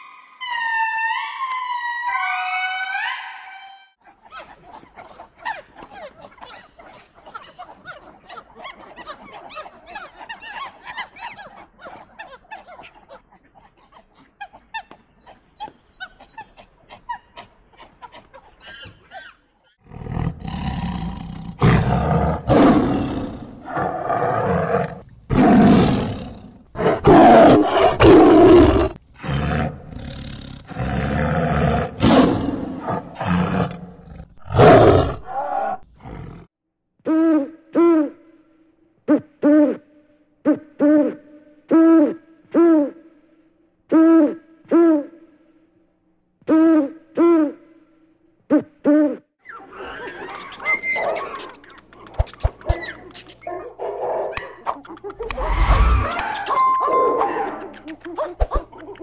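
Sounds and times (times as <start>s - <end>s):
tiger roaring and growling: 19.8s - 36.5s.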